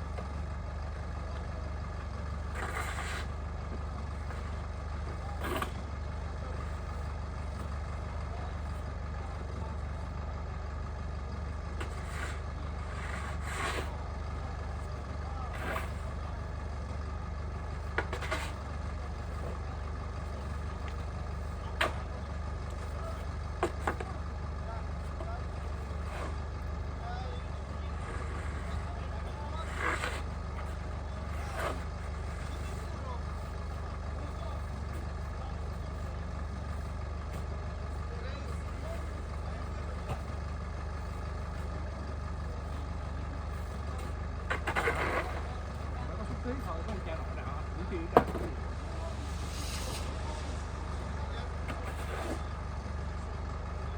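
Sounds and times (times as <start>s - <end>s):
low engine hum: 0.0s - 53.9s
burst of noise: 48.9s - 51.0s.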